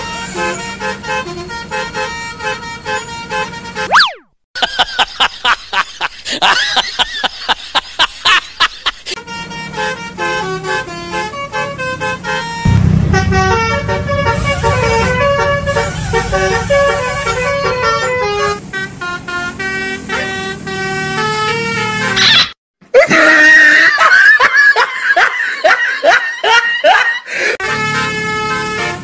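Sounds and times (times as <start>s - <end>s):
multi-tone bus horn playing a tune: 0.0s - 3.9s, 9.1s - 22.2s, 27.4s - 29.0s
low rumble: 12.7s - 18.6s.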